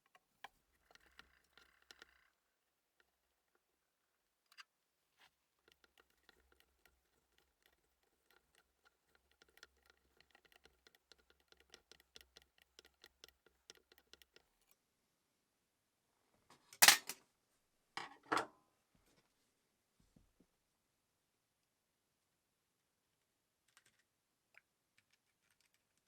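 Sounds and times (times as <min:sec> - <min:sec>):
small clicks and taps: 0:00.0 - 0:02.4, 0:05.6 - 0:14.7.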